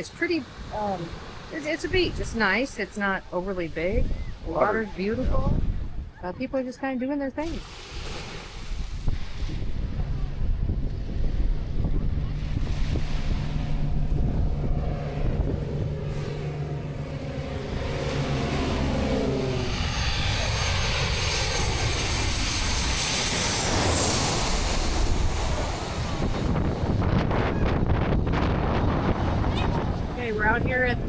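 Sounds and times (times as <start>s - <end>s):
airplane passing overhead: 0.0s - 31.0s.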